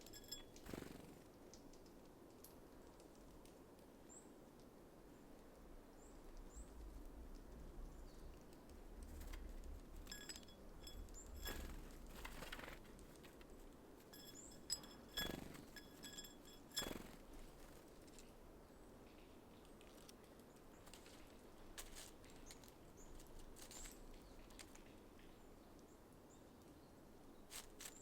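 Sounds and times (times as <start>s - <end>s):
bird wing flutter: 10.1s - 13.4s, 14.2s - 17.8s.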